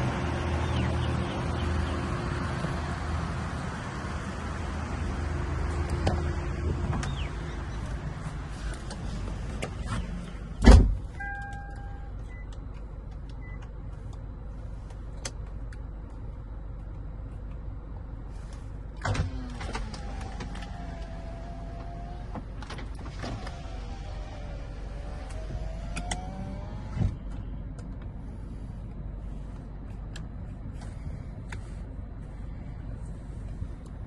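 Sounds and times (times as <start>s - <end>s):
heavy car door shutting: 9.4s - 11.4s, 19.0s - 27.3s.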